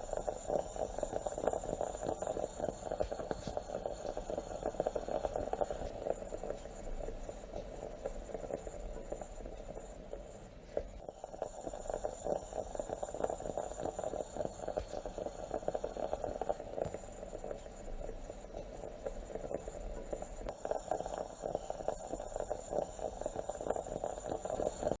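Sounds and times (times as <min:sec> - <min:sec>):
moka pot gurgling and sputtering: 0:00.0 - 0:25.0.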